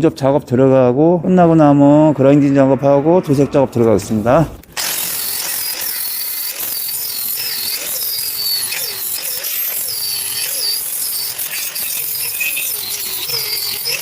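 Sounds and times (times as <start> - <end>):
arc welding crackling hiss: 4.7 - 14.0.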